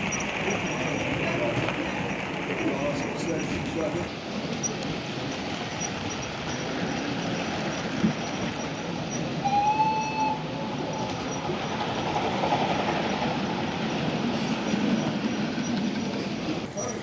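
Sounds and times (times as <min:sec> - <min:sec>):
model train rumbling: 0:00.0 - 0:17.0
train whistle blast: 0:09.4 - 0:10.6.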